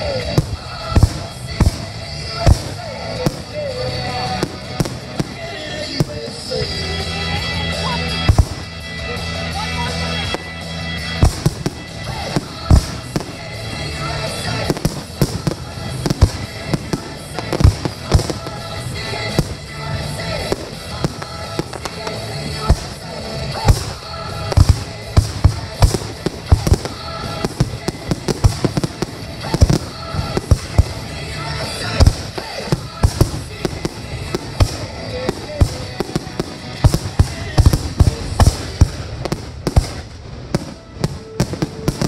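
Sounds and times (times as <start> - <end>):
music playing: 0.0 - 42.0
firework shells bursting: 11.2 - 42.0.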